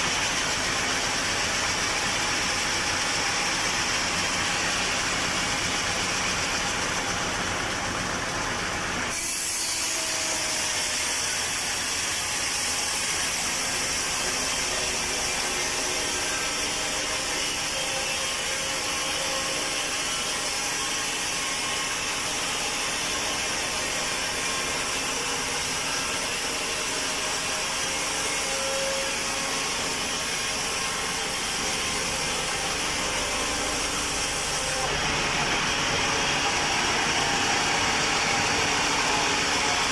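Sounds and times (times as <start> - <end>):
sawmill machinery drone: 0.0 - 39.9
saw blade cutting wood: 9.0 - 39.9.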